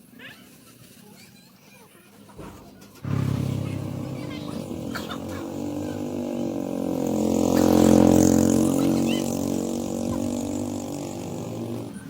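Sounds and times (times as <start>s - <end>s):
small engine running: 3.0s - 12.0s.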